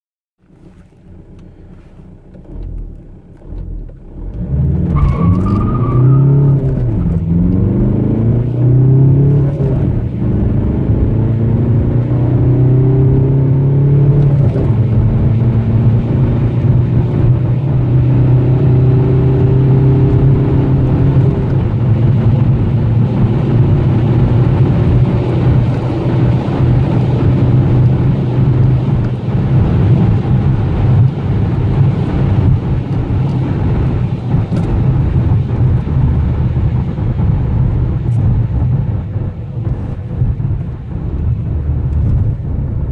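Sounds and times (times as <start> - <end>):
car engine accelerating: 0.4 - 42.9.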